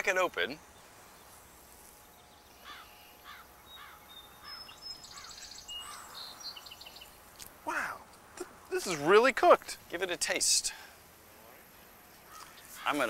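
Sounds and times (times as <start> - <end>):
faint bird calls: 0.8 - 8.5, 11.7 - 13.0.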